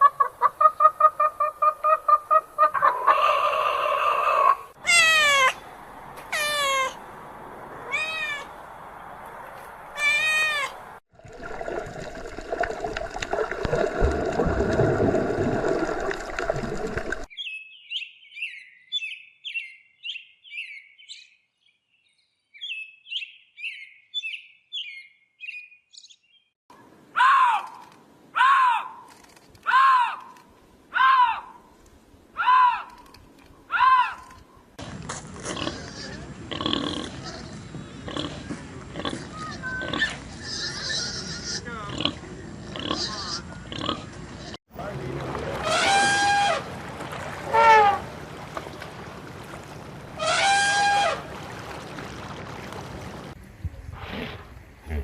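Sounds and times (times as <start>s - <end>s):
falling pitched animal cries: 2.7s - 5.6s, 6.3s - 7.0s, 7.9s - 8.5s, 10.0s - 10.8s, 28.4s - 29.0s, 50.2s - 51.2s.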